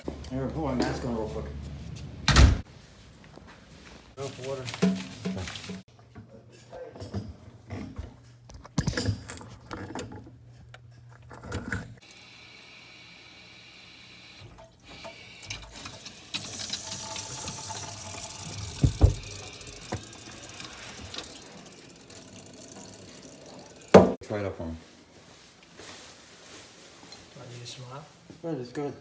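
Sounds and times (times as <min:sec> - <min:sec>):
water running from a pipe: 0:12.0 - 0:24.2
plumbing knocks and clanks: 0:18.2 - 0:21.4, 0:22.1 - 0:24.2
thumps: 0:18.7 - 0:20.1.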